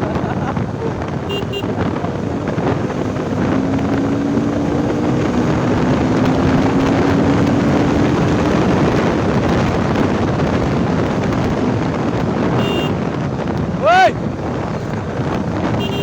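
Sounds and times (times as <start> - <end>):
motorcycle engine: 0.0 - 16.0
wind rushing over microphone: 0.0 - 16.0.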